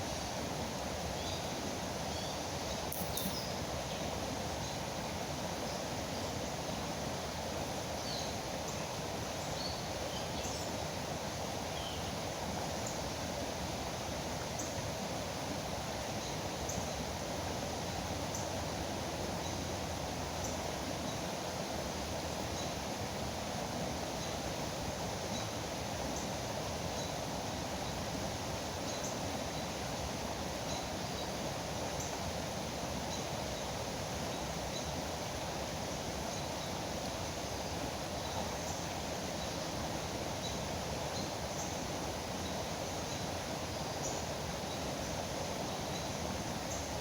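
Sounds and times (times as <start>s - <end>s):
faint bird chirps: 2.1s - 4.0s.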